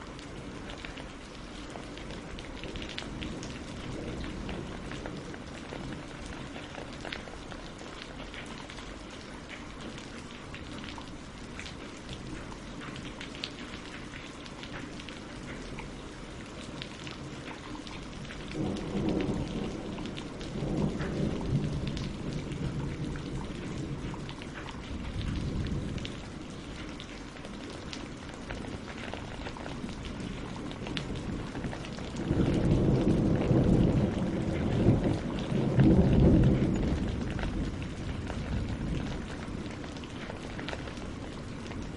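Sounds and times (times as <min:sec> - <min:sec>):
rain on leaves and water: 0:00.0 - 0:41.9
rolling thunder: 0:18.2 - 0:26.7, 0:29.5 - 0:41.9.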